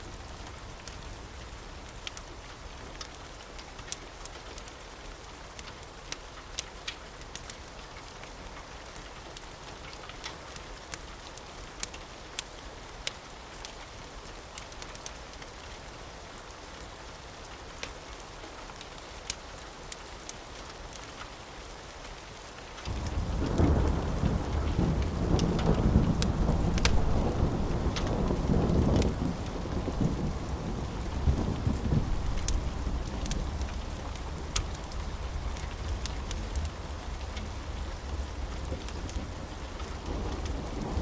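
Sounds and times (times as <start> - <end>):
wood fire crackling and popping: 0.0 - 15.7, 17.8 - 41.0
steady rain: 0.0 - 41.0
rumble of thunder: 22.9 - 41.0.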